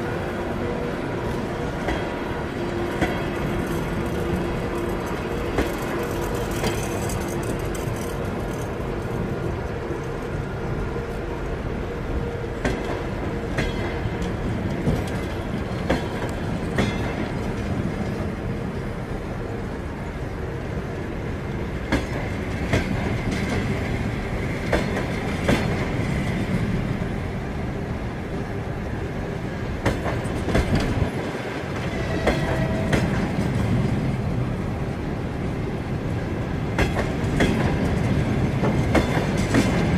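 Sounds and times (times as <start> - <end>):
train wheels rumbling: 0.0 - 39.9
wheels clacking over rail joints: 0.7 - 10.3, 12.3 - 18.5, 21.8 - 26.9, 29.7 - 34.5, 36.3 - 39.9.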